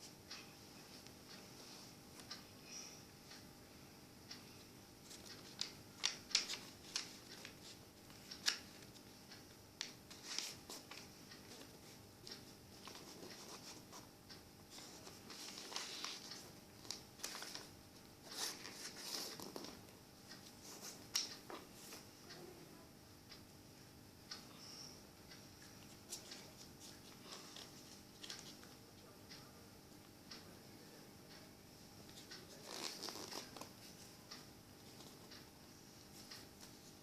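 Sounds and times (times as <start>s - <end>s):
paper being folded and creased: 5.1s - 8.9s, 14.8s - 19.8s, 32.3s - 33.7s.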